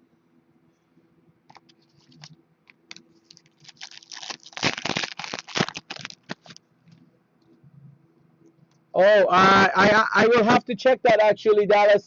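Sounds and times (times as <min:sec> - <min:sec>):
card wrappers crinkling and tearing: 0:02.9 - 0:06.6.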